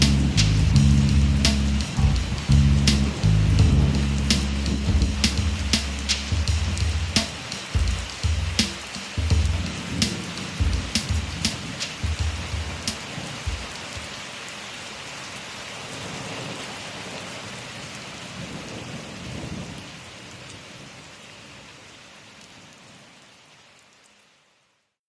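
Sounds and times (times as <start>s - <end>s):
thunder rumbling: 0.0s - 14.2s
steady rain: 0.0s - 24.9s.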